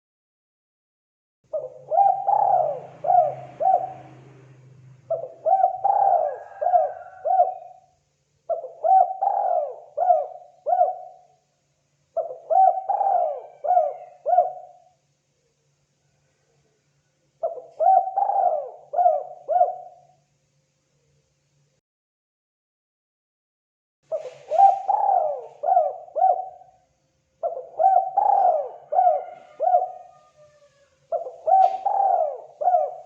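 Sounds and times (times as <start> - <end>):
dove cooing: 1.5 - 7.9, 8.5 - 11.4, 12.2 - 15.0, 17.4 - 20.2, 24.1 - 26.8, 27.4 - 33.0.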